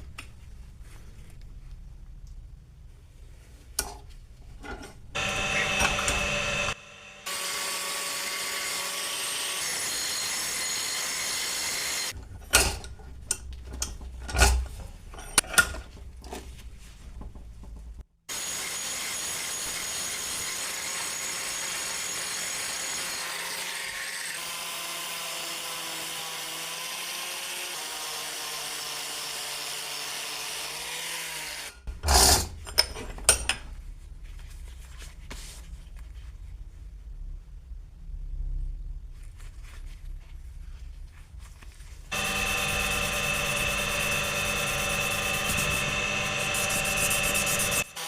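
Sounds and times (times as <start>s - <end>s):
power tool cutting: 5.2s - 12.2s, 18.3s - 31.8s, 42.1s - 48.0s.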